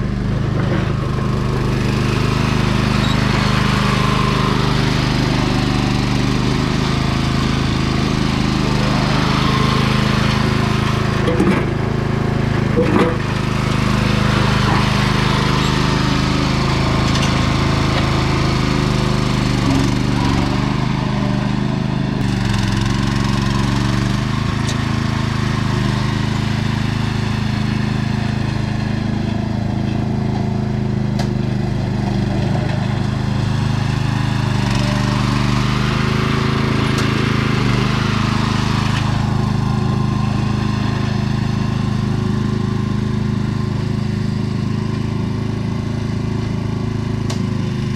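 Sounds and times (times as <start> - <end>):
garden tractor engine running: 0.0 - 47.9.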